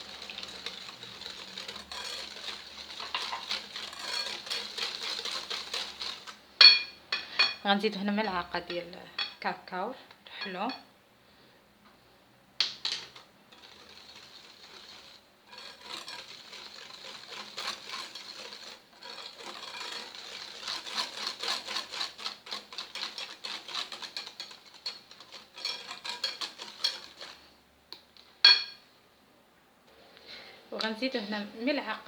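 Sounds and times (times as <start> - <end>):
utensil clinking on bowl: 0.0 - 9.4, 28.5 - 28.8
whisk clicking and scraping in bowl: 0.0 - 9.4, 12.6 - 28.8.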